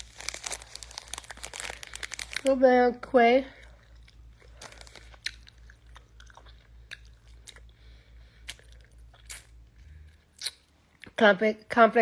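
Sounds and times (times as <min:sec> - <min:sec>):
chewing candy crunches: 0:00.0 - 0:02.6, 0:03.6 - 0:07.8, 0:08.4 - 0:11.2
low steady hum: 0:00.0 - 0:12.0.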